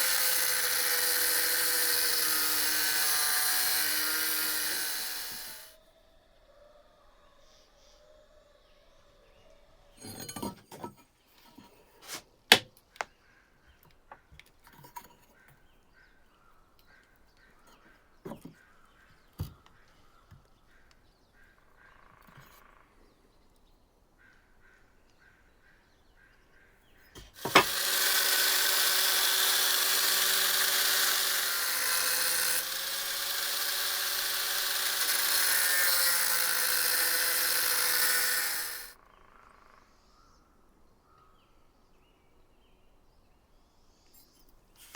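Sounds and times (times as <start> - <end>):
handheld power tool running: 0.0 - 5.7, 27.2 - 39.0.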